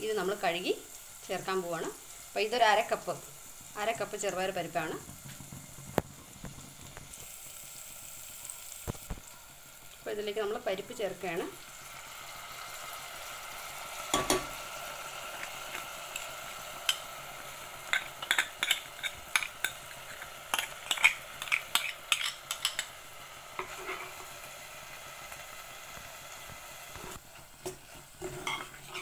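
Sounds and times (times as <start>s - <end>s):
food sizzling in a pot: 0.0s - 29.0s
metal spoon scraping and clinking: 17.9s - 22.9s, 28.2s - 29.0s.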